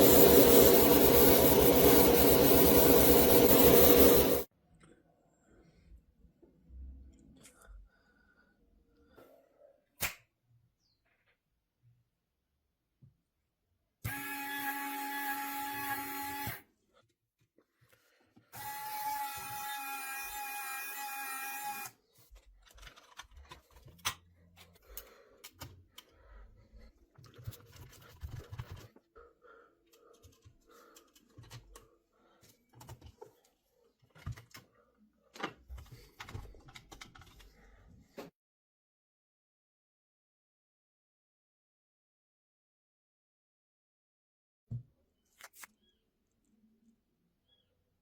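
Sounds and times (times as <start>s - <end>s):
power tool whining: 0.0s - 4.5s.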